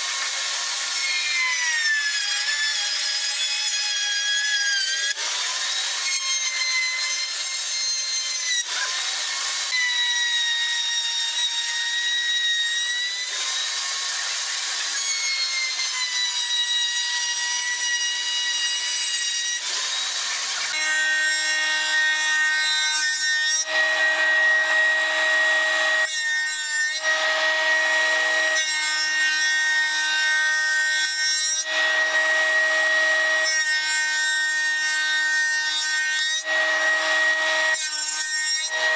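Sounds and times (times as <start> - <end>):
wood shaper whine: 0.0 - 38.9.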